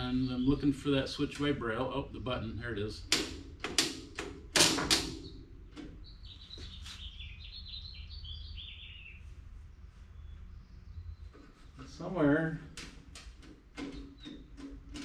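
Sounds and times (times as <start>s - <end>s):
sharp knocks and clunks: 3.0s - 6.8s, 12.6s - 15.0s
small bird chirping: 5.2s - 12.0s.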